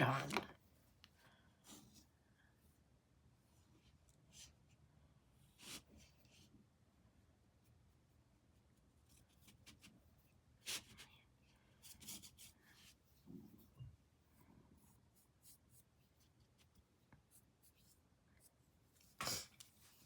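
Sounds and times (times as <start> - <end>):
paintbrush strokes on canvas: 11.8 - 20.0.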